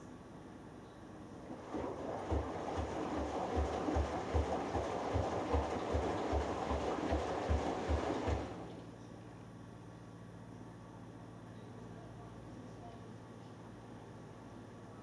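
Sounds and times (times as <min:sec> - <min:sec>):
washing machine hum: 0:01.3 - 0:09.0
washing machine tumbling: 0:01.4 - 0:08.9.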